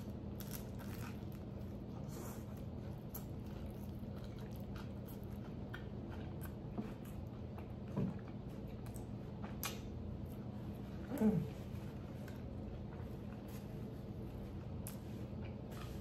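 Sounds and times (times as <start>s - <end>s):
person chewing: 0.0s - 10.0s.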